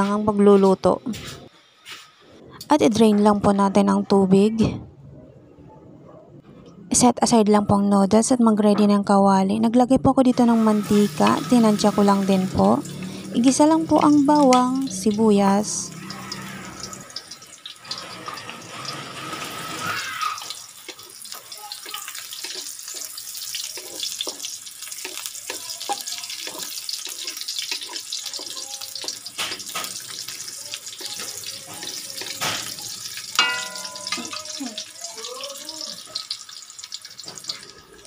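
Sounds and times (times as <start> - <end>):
garlic and onion sizzling in oil: 10.3 - 38.0
wooden spatula scraping a wok: 17.9 - 20.0, 26.4 - 28.7.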